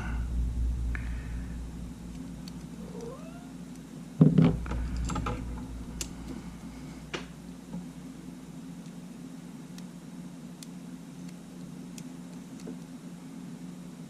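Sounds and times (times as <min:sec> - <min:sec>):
small clicks and taps of tools: 0:10.6 - 0:12.9.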